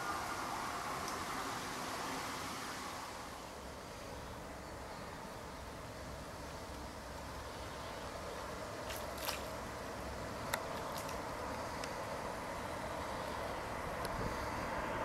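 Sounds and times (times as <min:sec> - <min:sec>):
distant high-speed train rushing: 0:00.0 - 0:15.0
faint ticks: 0:10.4 - 0:12.2, 0:14.0 - 0:14.2.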